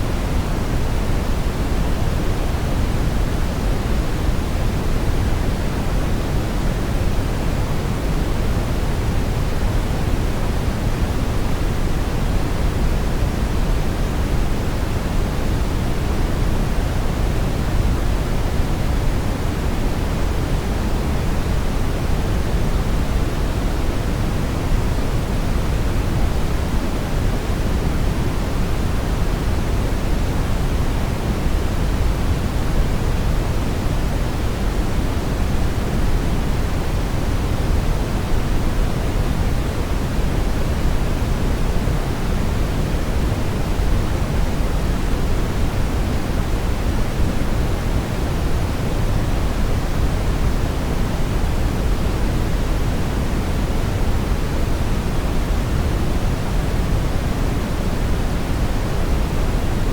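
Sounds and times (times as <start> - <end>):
steady brown noise: 0.0 - 59.9.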